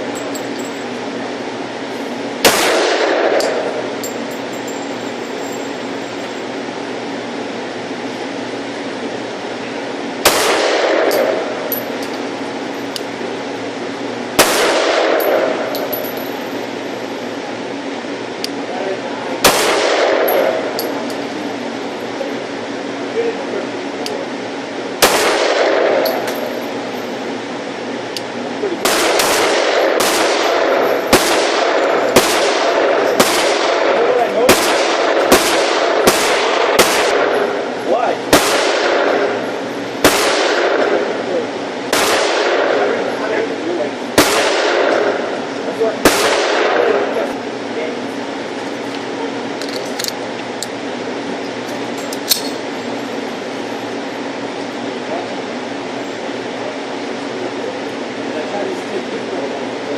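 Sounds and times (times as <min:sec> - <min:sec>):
pistol shots echoing: 0:02.4 - 0:03.8, 0:10.2 - 0:11.6, 0:14.4 - 0:16.0, 0:19.4 - 0:20.9, 0:25.0 - 0:26.3, 0:28.8 - 0:37.7, 0:38.3 - 0:41.2, 0:41.9 - 0:43.1, 0:44.2 - 0:45.3, 0:46.0 - 0:47.1.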